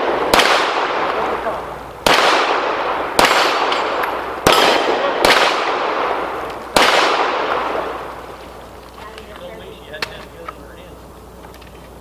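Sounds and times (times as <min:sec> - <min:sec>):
gunshot echo: 0:00.0 - 0:08.5
pistol shots: 0:00.0 - 0:08.6.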